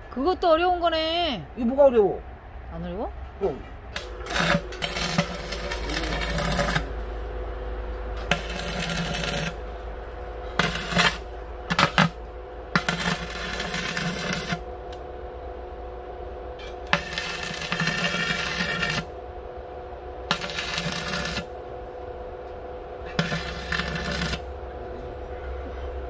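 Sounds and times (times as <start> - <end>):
electrical hum: 0.0 - 26.0
arc welding crackling hiss: 4.0 - 7.2, 8.2 - 15.0, 16.8 - 19.2, 20.2 - 21.6, 23.0 - 24.6.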